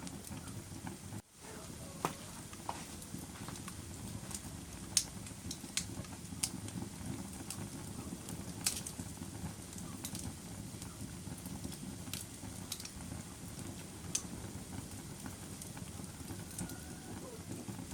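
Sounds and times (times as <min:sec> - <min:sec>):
fire crackling and popping: 0:00.0 - 0:17.9
low rumble of flames: 0:00.0 - 0:17.9.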